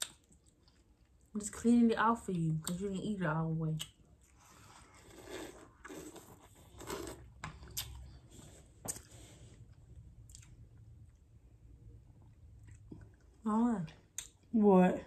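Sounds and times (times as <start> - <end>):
chewing and crunching: 0.0 - 1.3.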